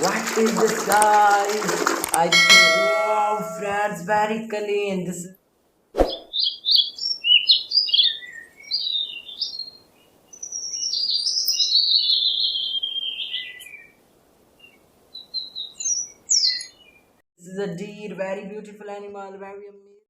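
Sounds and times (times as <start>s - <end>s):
bird warbling song: 6.0s - 13.9s, 14.6s - 17.1s
bird chirps: 6.1s - 13.9s, 14.6s - 17.0s.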